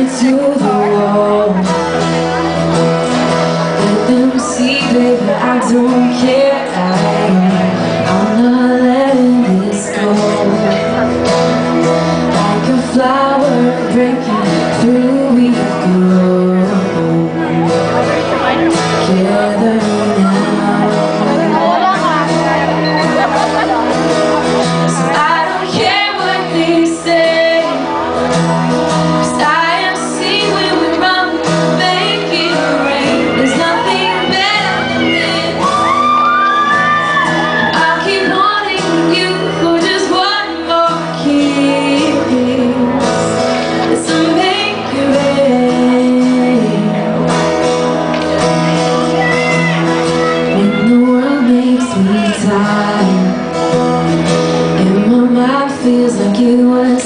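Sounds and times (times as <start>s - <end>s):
live pop band playing: 0.0s - 57.0s
person singing: 0.0s - 57.0s
audience shouts and whoops: 32.8s - 38.0s.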